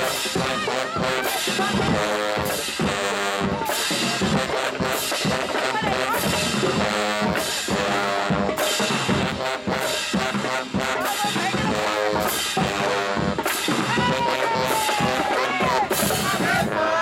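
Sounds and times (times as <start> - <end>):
brass holding notes: 0.0 - 17.0
drumline bass drums and snares: 0.0 - 17.0.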